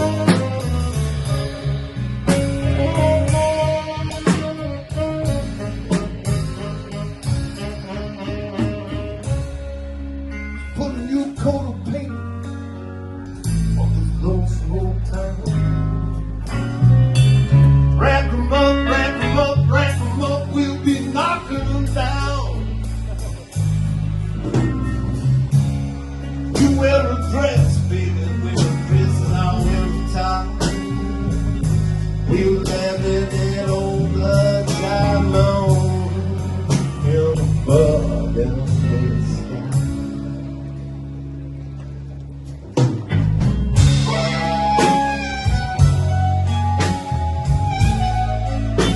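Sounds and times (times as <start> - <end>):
drum and cymbal hits: 0.0 - 9.6
bass line: 0.0 - 48.9
drums: 0.0 - 48.9
guitar: 0.0 - 48.9
live band playing: 0.0 - 48.9
person singing: 10.6 - 12.3, 18.0 - 23.3, 26.5 - 31.5, 32.2 - 40.1.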